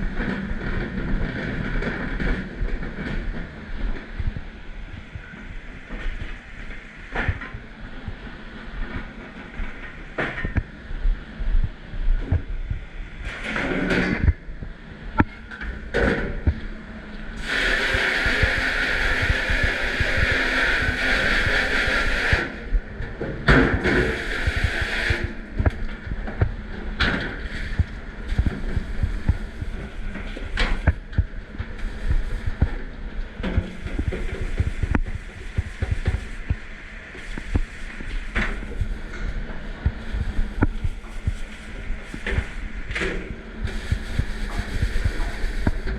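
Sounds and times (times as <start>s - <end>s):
water spraying hard: 17.4s - 22.6s, 23.8s - 25.4s, 43.7s - 45.9s.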